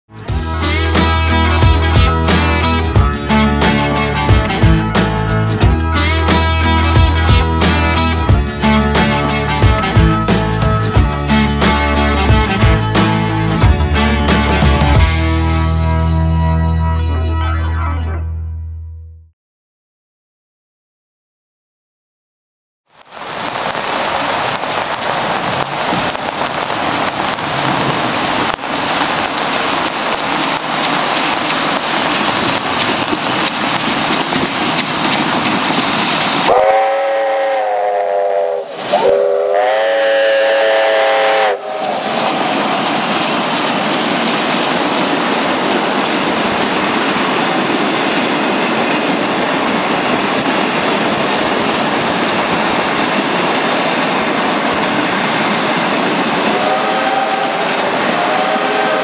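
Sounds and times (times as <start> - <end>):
steam locomotive running: 0.2 - 16.0, 23.6 - 59.0
steam whistle blasts: 36.5 - 41.9, 56.5 - 59.0.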